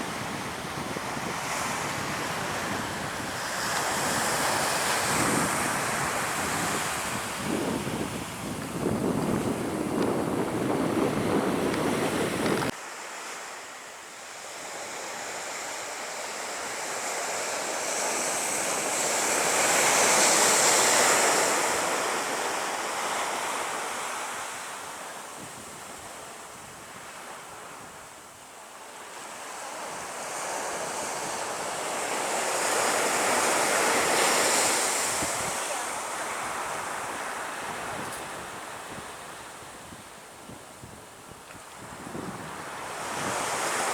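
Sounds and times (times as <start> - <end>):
waves breaking on a beach: 0.0 - 43.9.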